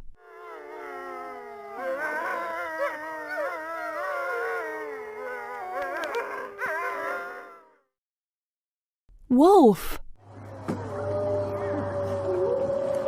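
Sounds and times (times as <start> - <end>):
wolves howling: 0.5 - 7.8, 10.8 - 13.0.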